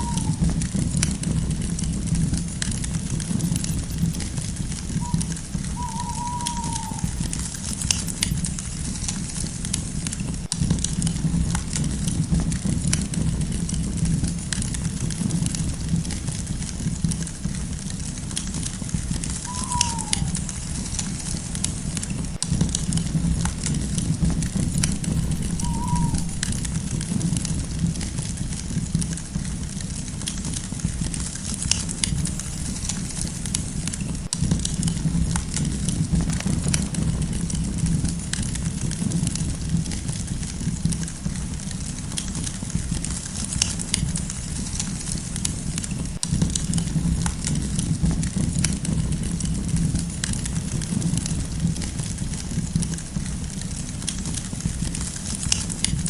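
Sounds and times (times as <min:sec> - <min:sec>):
faint falling animal call: 0:00.0 - 0:00.9, 0:03.4 - 0:08.3, 0:19.3 - 0:22.1, 0:24.6 - 0:26.8
low rumble of burning: 0:00.0 - 0:56.0
campfire crackling and popping: 0:00.2 - 0:56.0.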